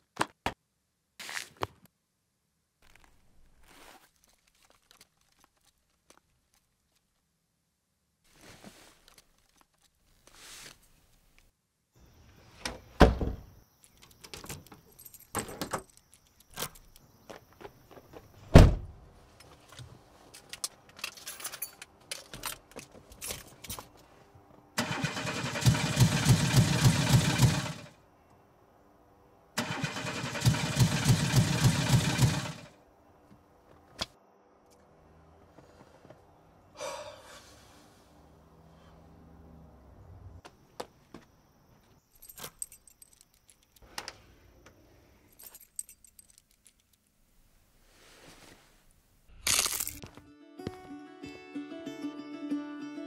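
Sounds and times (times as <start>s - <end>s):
car starter cranking engine: 24.8s - 27.9s, 29.6s - 32.7s.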